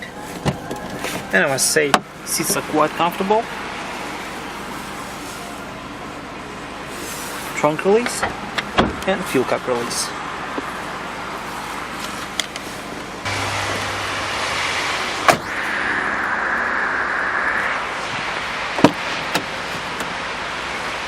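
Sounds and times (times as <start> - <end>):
steady noise: 12.8 - 21.0
car door latch clicks: 18.8 - 20.1.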